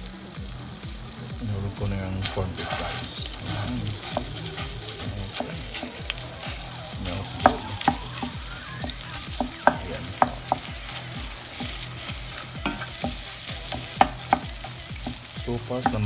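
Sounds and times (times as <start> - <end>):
meat and onions sizzling in a pot: 0.0 - 16.0
wooden spoon stirring: 2.0 - 16.0
spoon knocking against pot: 7.4 - 10.7, 12.6 - 15.2.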